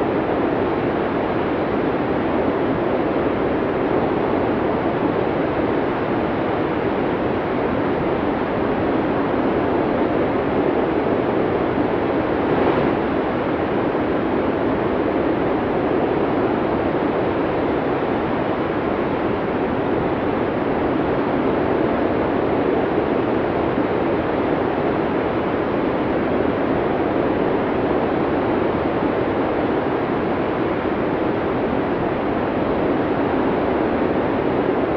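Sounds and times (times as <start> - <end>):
snowstorm wind blowing: 0.0 - 34.9.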